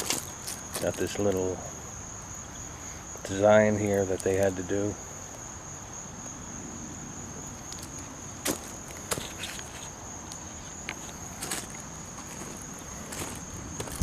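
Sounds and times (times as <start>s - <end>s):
footsteps on gravel: 0.0s - 1.5s, 7.7s - 14.0s
insects trilling: 0.0s - 14.0s.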